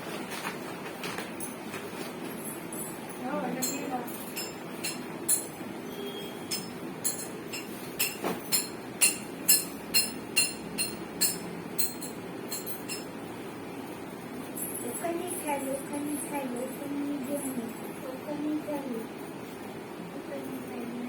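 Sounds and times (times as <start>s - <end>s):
metallic clinks and knocks of tools: 2.4s - 5.6s, 6.5s - 13.2s.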